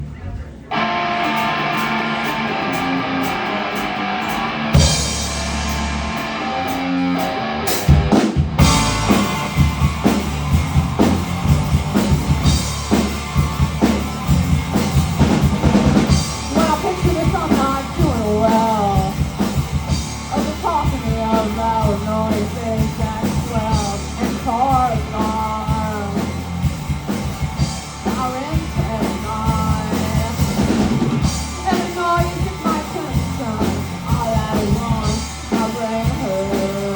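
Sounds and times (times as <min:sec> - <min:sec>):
bass guitar: 0:00.0 - 0:36.9
drums: 0:00.0 - 0:36.9
electric guitar: 0:00.6 - 0:36.9
person singing: 0:16.4 - 0:19.3, 0:20.3 - 0:26.4, 0:28.0 - 0:36.9.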